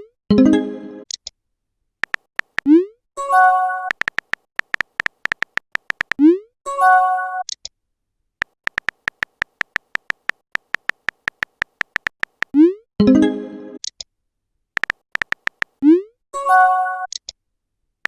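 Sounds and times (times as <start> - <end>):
phone keyboard typing clicks: 2.0 - 2.7, 3.9 - 6.2, 8.4 - 12.6, 14.8 - 15.8.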